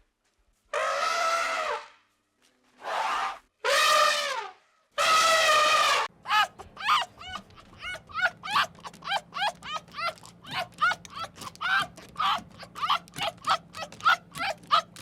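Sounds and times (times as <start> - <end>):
animal calling: 5.0 - 15.0
animal yipping: 5.0 - 15.0.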